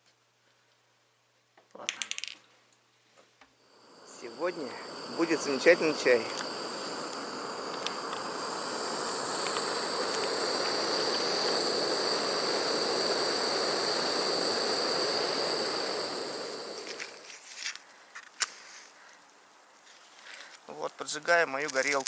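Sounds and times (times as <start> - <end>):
insects buzzing in chorus: 3.6 - 17.6
rushing noise: 3.7 - 17.3.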